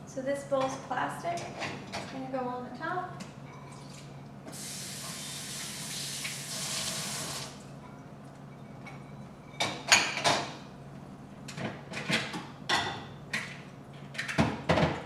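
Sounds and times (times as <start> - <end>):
tap water running: 3.8 - 7.6.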